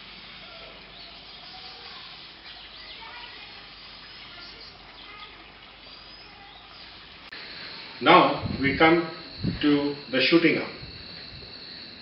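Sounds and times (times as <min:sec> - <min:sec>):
faint bird chirps: 0:00.3 - 0:07.8
steady background ambience: 0:07.2 - 0:12.0.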